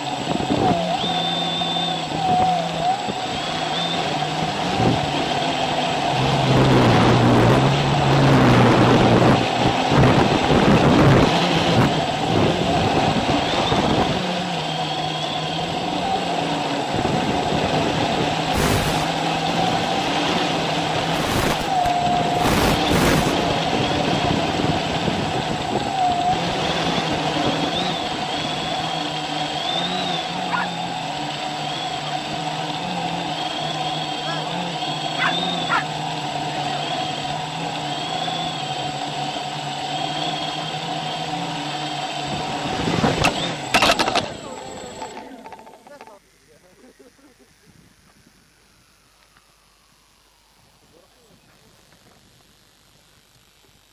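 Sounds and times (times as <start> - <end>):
drone propellers humming: 0.0 - 53.9
rushing noise: 18.3 - 24.3.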